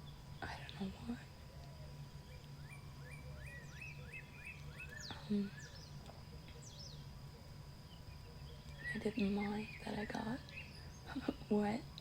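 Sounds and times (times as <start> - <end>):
birds chirping: 0.0 - 12.0
steady low hum: 0.0 - 12.0
downward-sweeping bird whistles: 2.2 - 7.1, 7.9 - 11.1.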